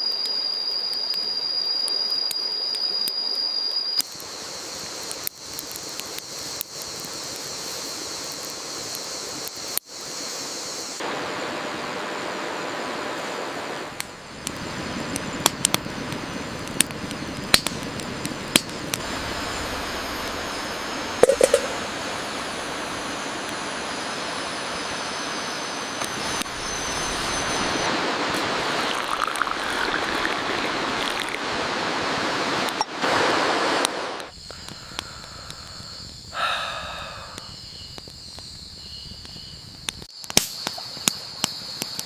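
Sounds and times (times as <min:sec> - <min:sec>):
high insect trill: 0:00.0 - 0:11.0, 0:15.0 - 0:28.0, 0:28.7 - 0:31.3, 0:34.3 - 0:42.0
rain hissing: 0:04.0 - 0:11.2, 0:13.4 - 0:38.2
sharp pops and clicks: 0:15.4 - 0:19.0, 0:21.2 - 0:21.8, 0:37.4 - 0:42.0.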